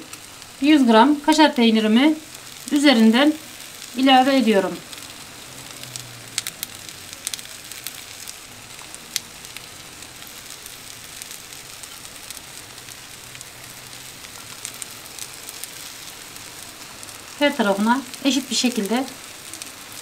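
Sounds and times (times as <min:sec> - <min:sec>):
food sizzling in a pan: 0:00.0 - 0:20.0
sharp ticks and crackles: 0:04.8 - 0:20.0.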